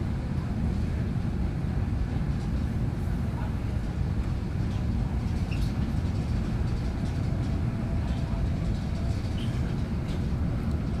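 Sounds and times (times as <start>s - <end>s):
train rumbling in motion: 0.0s - 11.0s
faint light ticks: 8.1s - 10.9s.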